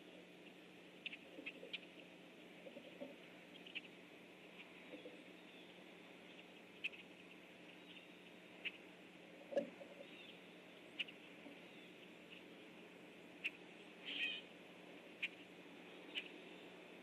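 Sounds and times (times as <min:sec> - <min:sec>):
faint high bird chirps: 0:13.4 - 0:14.5, 0:15.2 - 0:16.8.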